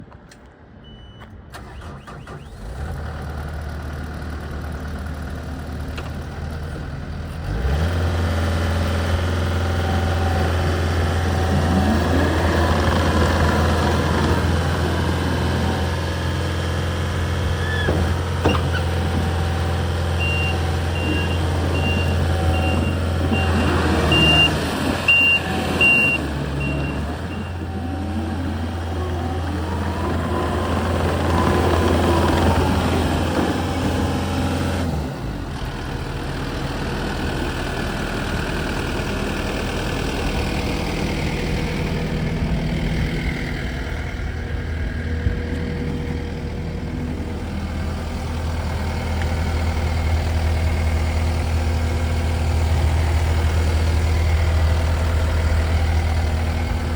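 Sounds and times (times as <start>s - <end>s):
diesel engine starting and idling: 0.3s - 56.9s
back-up alarm beeping: 20.2s - 27.7s.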